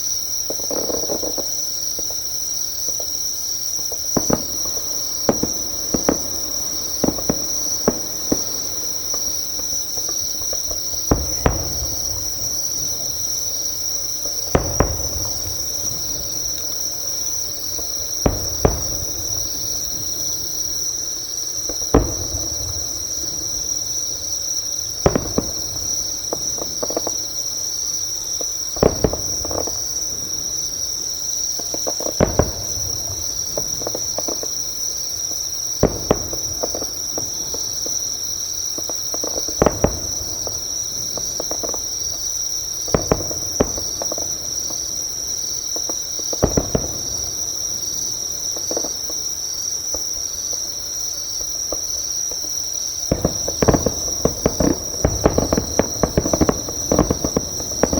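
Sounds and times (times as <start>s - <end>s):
high-pitched insect trill: 0.0s - 57.9s
insect chirping: 0.0s - 57.9s
distant fireworks bangs: 0.4s - 2.2s, 2.8s - 50.1s, 51.4s - 57.9s.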